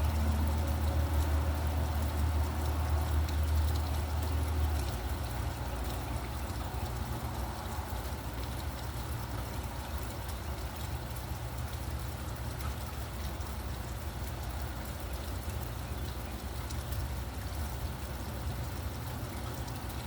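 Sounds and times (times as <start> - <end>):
water drips: 0.0 - 20.0.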